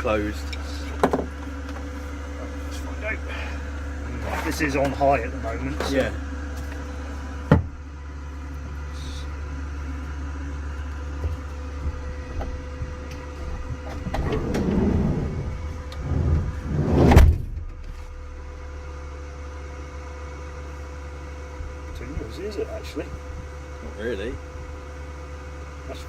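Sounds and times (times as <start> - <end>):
air heater humming: 0.0 - 26.0
loud thump: 16.3 - 18.3.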